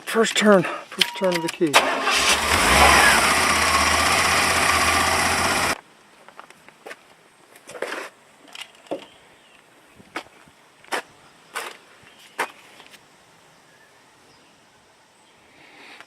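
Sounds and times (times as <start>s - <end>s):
car engine running: 1.8s - 5.8s.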